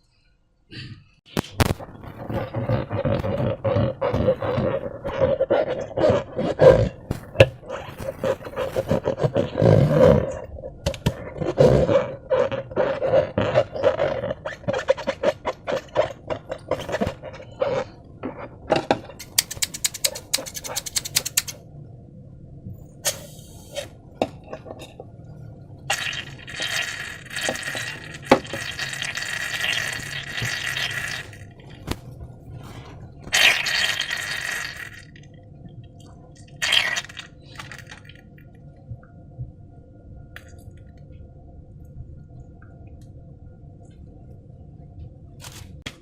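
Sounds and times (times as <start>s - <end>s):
slime squelching and crackling: 1.3s - 18.6s, 25.9s - 35.2s, 36.5s - 38.2s.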